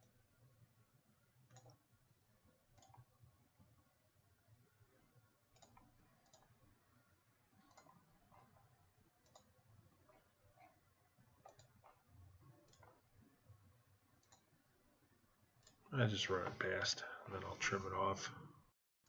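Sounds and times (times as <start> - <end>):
computer mouse clicks: 1.5 - 1.9, 2.7 - 3.7, 5.5 - 6.7, 7.5 - 13.3, 14.2 - 14.6.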